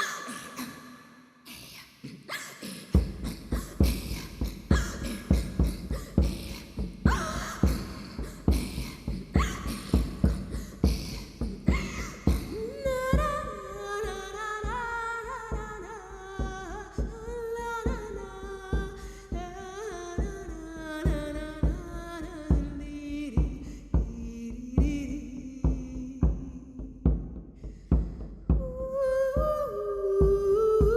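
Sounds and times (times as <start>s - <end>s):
steady drum beat: 2.9s - 30.9s
person singing slow melody: 28.6s - 30.9s.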